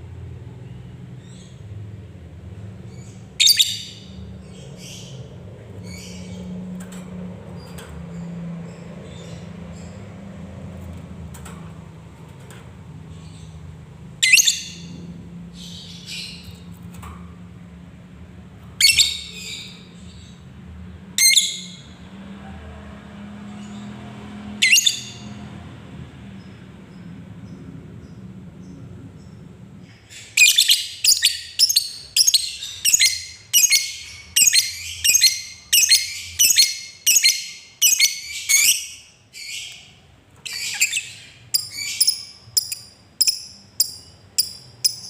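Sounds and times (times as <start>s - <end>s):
soft bird chirps: 26.4s - 45.0s.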